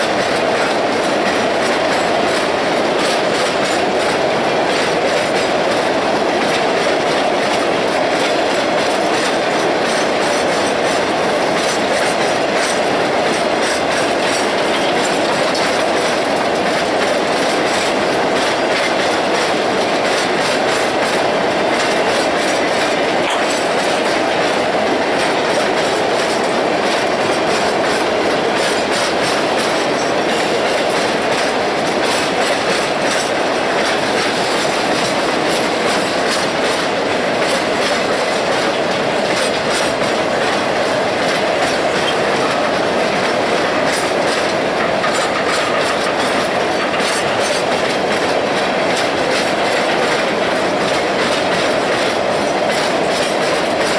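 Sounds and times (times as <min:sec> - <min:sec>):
steel wheels clicking over rail joints: 0:00.0 - 0:53.9
train cars rolling past: 0:00.0 - 0:53.9.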